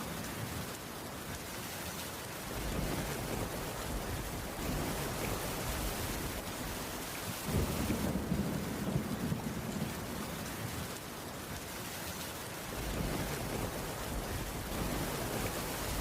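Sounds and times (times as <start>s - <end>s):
heavy rain: 0.0s - 16.0s
low rumble of thunder: 2.5s - 11.0s, 12.7s - 16.0s.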